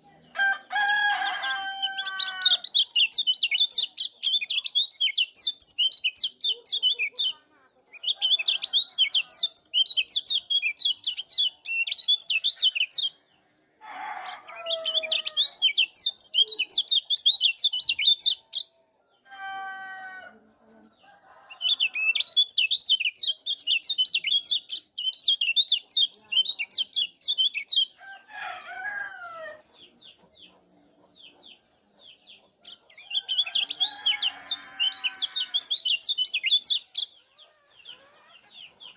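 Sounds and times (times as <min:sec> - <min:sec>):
bird fast high chirping song: 0:02.0 - 0:07.4, 0:08.0 - 0:13.2, 0:15.0 - 0:18.7, 0:21.6 - 0:28.0.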